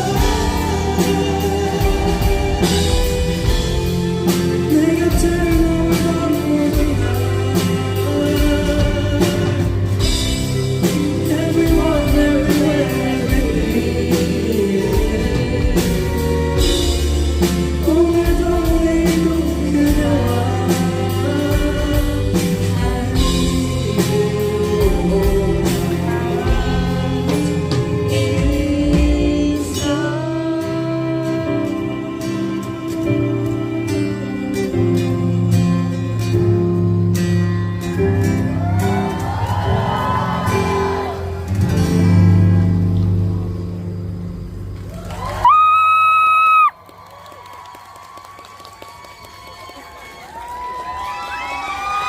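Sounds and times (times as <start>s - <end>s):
man singing: 0.0s - 36.9s
live pop band: 0.0s - 52.0s.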